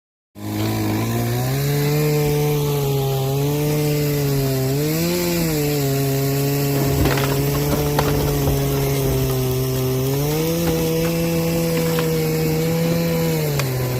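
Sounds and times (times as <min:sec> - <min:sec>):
sharp cracks: 0:06.4 - 0:13.8
heavy machinery engine running: 0:06.6 - 0:12.9.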